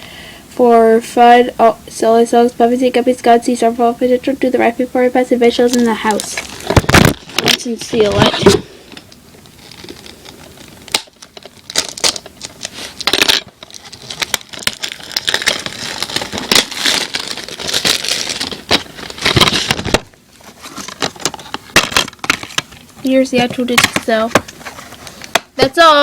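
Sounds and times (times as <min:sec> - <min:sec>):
plastic wrap crinkling and tearing: 0:05.6 - 0:08.5, 0:09.4 - 0:25.4.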